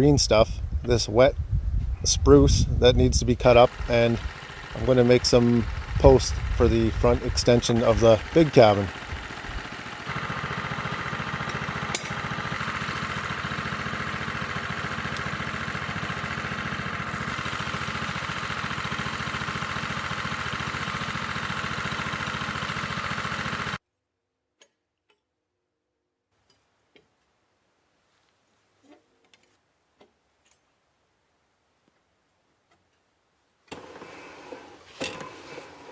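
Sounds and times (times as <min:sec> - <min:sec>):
sawmill engine running: 0:02.1 - 0:23.8, 0:33.7 - 0:35.9.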